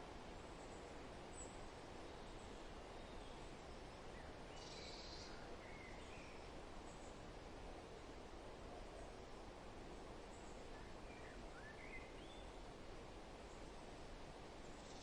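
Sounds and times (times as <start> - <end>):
wind rustling through forest: 0.0 - 15.0
faint bird chirps: 0.6 - 7.1.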